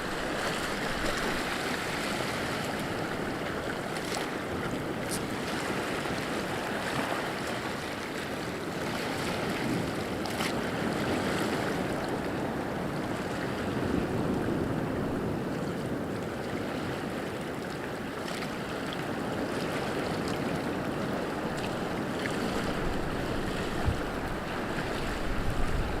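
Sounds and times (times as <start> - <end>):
water rushing: 0.0 - 13.8, 19.6 - 26.0.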